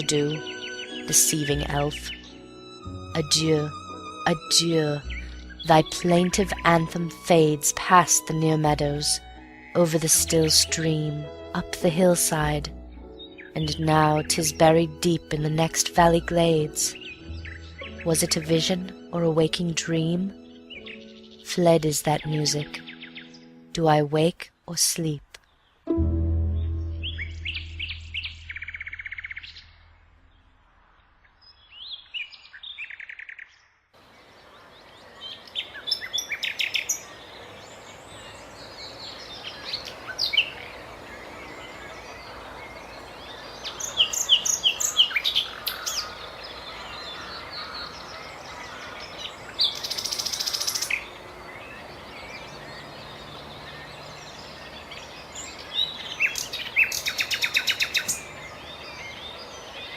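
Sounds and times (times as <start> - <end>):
nightingale singing: 0.0 - 23.6, 24.6 - 29.9, 31.3 - 59.9
low note: 25.9 - 31.2
outdoor background hiss: 34.0 - 59.9.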